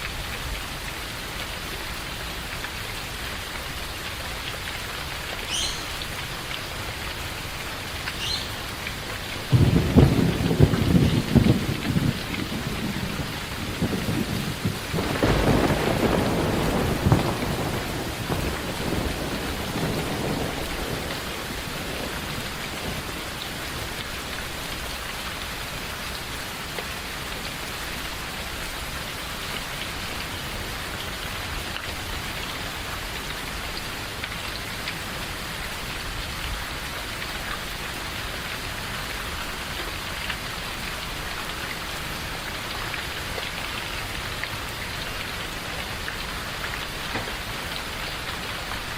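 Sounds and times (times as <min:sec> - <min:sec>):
steady rain: 0:00.0 - 0:48.9
rolling thunder: 0:09.4 - 0:23.4.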